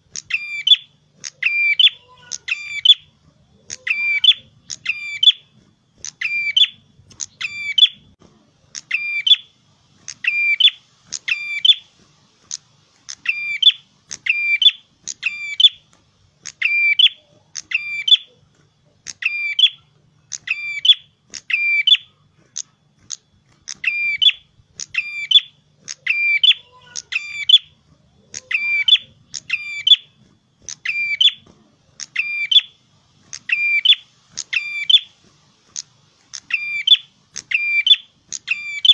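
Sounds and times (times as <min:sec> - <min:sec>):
songbird singing high phrase: 0:00.2 - 0:03.1, 0:03.7 - 0:05.4, 0:06.1 - 0:08.0, 0:16.5 - 0:18.3, 0:23.8 - 0:27.7, 0:28.3 - 0:30.1, 0:32.0 - 0:32.8, 0:33.4 - 0:35.1, 0:36.4 - 0:38.9.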